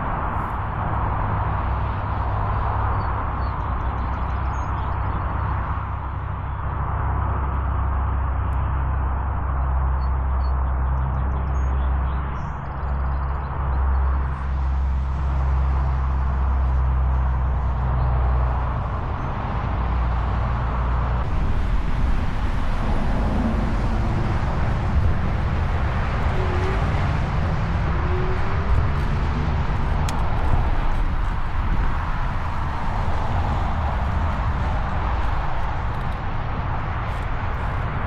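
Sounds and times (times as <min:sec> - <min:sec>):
wind buffeting microphone: 0:12.6 - 0:38.0.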